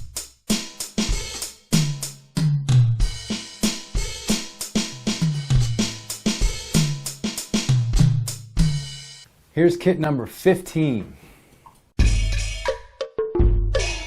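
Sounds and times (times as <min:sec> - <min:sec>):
electronic drum beat: 0:00.0 - 0:09.0.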